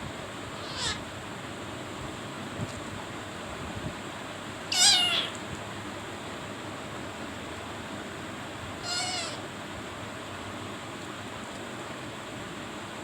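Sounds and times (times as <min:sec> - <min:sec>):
cat meowing: 0:00.6 - 0:01.0, 0:04.7 - 0:05.4, 0:08.8 - 0:09.4.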